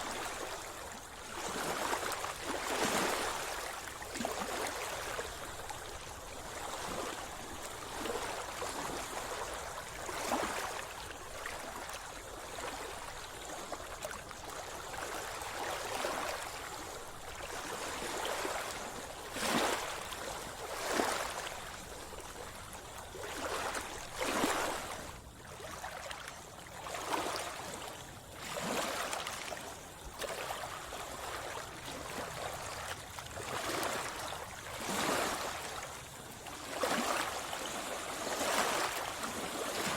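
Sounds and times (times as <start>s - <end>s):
water splashes: 0.0s - 5.8s, 14.8s - 39.9s
sea water sloshing and lapping: 0.0s - 39.9s.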